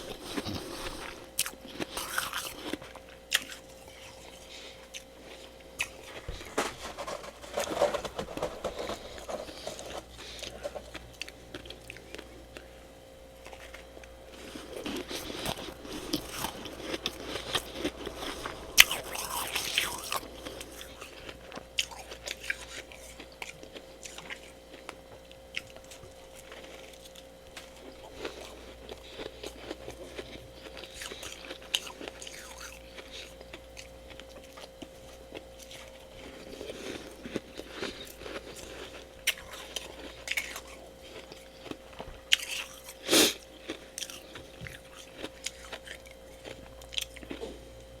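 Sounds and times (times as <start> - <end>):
chewing crunchy ice: 0.0 - 48.0
steady low hum: 0.0 - 48.0.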